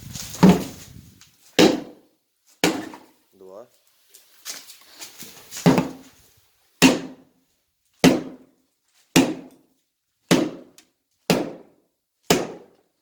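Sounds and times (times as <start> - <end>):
hammer striking brick wall: 1.6 - 3.1, 5.6 - 6.0, 6.8 - 7.3, 8.0 - 8.5, 9.1 - 9.7, 10.3 - 12.8.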